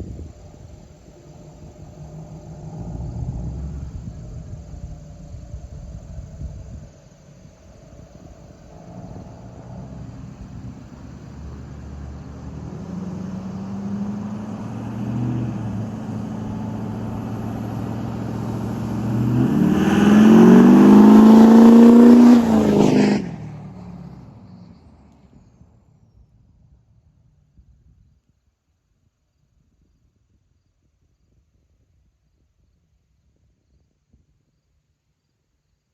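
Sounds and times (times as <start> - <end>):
diesel truck engine accelerating: 0.0 - 25.6.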